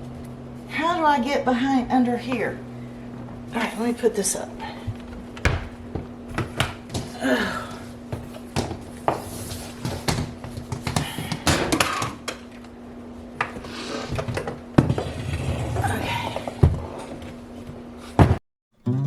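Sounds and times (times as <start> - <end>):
steady low hum: 0.0 - 19.0
household items clattering: 6.4 - 12.4.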